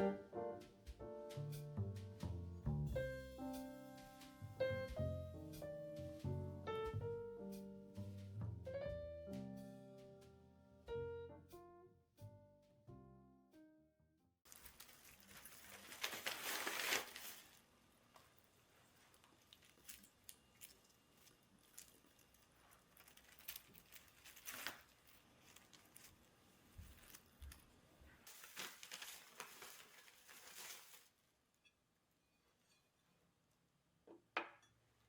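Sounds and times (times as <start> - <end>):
crinkling rustling handling: 14.5 - 31.3.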